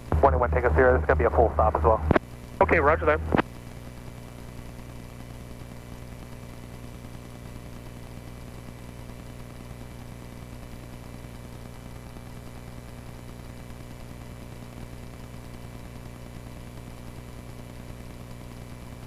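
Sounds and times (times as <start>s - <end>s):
airplane engine and propeller droning: 0.0s - 3.4s
radio calls: 0.0s - 3.5s.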